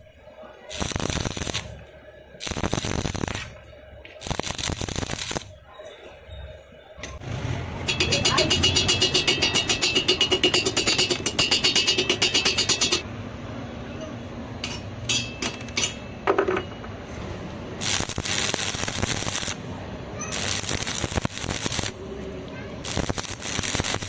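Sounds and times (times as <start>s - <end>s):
welding arc crackling and hissing: 0.7s - 1.8s, 2.4s - 5.5s, 17.8s - 19.6s, 20.2s - 22.0s, 22.8s - 24.0s
rhythmic pulsing buzz: 7.8s - 13.0s.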